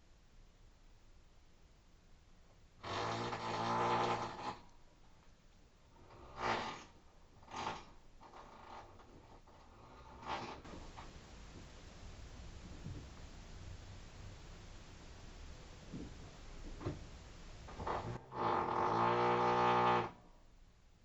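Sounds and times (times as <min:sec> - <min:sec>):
rotary hammer drilling: 0:02.8 - 0:04.6, 0:17.8 - 0:20.2.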